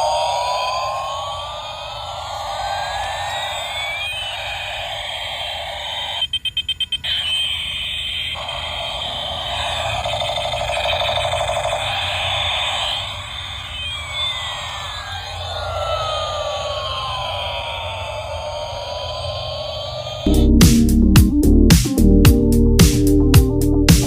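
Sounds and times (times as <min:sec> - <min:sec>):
electronic siren-like tones: 0:00.0 - 0:20.6
fast pulsing tone: 0:00.0 - 0:20.6
sharp beeps: 0:05.9 - 0:15.4.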